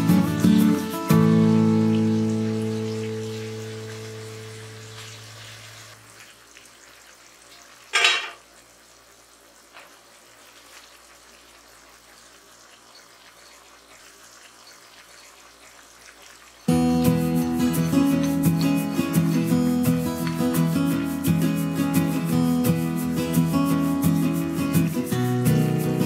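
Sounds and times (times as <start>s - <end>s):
guitar music: 0.0s - 5.8s, 16.7s - 26.0s
meat sizzling in a pan: 0.0s - 26.0s.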